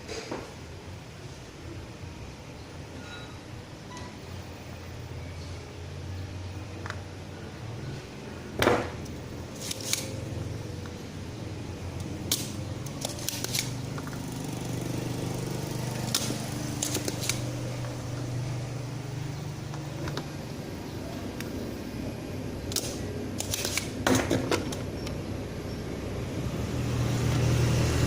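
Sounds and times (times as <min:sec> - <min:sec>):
steady low hum: 0:00.6 - 0:28.0
hand tools clicking and tapping: 0:16.0 - 0:17.9.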